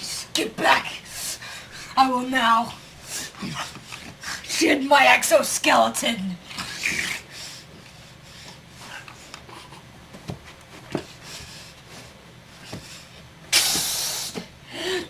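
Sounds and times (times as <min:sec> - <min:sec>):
loud rushing hiss: 0:13.5 - 0:14.4.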